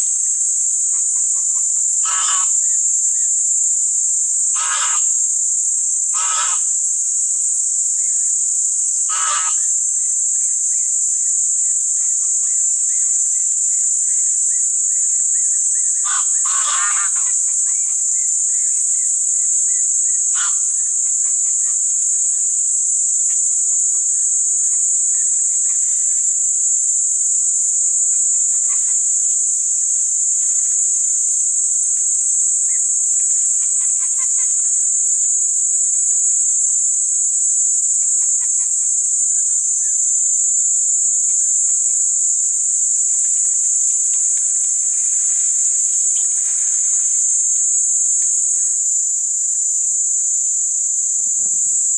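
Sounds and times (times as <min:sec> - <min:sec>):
high-pitched insect chorus: 0:00.0 - 0:51.9.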